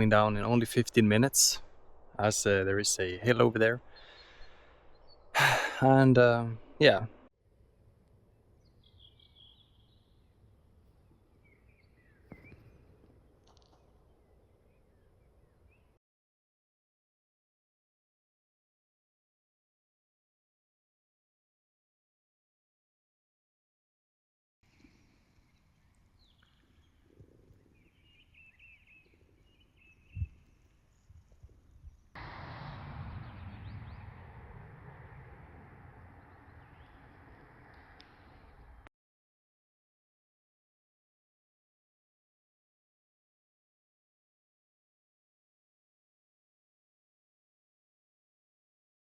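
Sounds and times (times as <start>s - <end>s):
small bird chirping: 8.6s - 10.2s
low background rumble: 31.9s - 38.9s
low thump: 32.2s - 36.3s.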